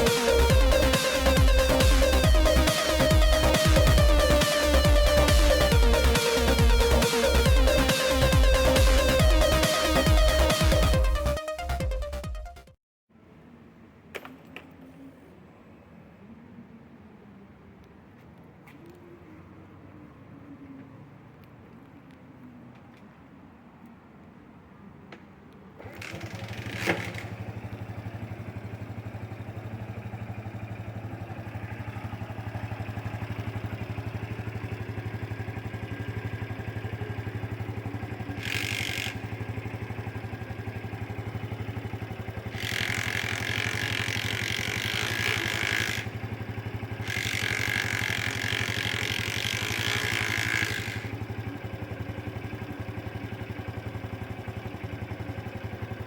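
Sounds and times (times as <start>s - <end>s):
motorcycle engine idling: 0.0s - 12.2s, 25.8s - 56.0s.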